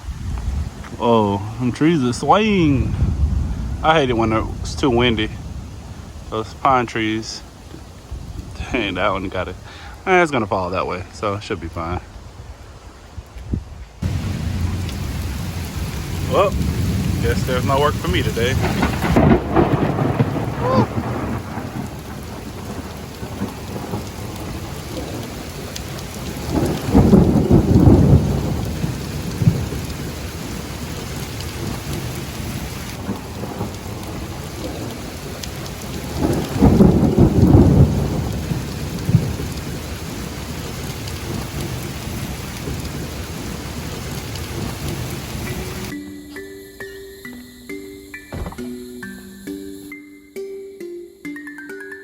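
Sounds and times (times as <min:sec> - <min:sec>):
thunder rumbling: 0:00.0 - 0:10.2, 0:14.0 - 0:46.0, 0:48.3 - 0:48.8
rain falling: 0:00.0 - 0:49.9.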